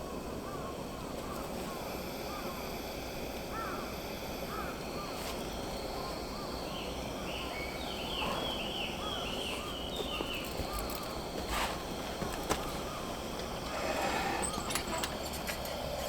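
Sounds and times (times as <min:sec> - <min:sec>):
background hiss: 0:00.0 - 0:16.0
small birds chirping: 0:04.5 - 0:15.9.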